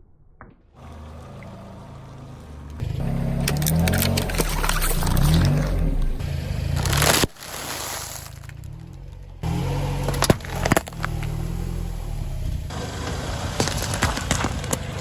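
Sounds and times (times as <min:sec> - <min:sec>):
car engine running slowly: 0:00.8 - 0:15.0
tyre crushing something brittle: 0:03.5 - 0:06.0, 0:06.7 - 0:09.3, 0:10.0 - 0:11.5, 0:13.1 - 0:15.0.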